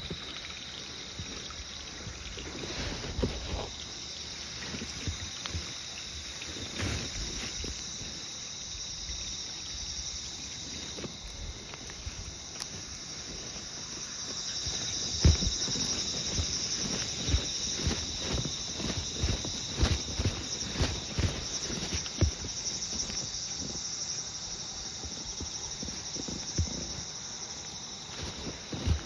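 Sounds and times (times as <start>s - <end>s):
insects chirring: 0.0s - 29.0s
footsteps on walk: 10.6s - 23.9s, 24.9s - 29.0s.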